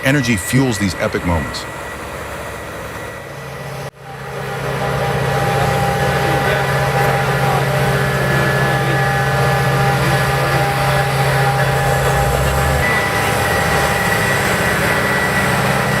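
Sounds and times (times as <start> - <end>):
heavy engine humming: 0.0 - 16.0.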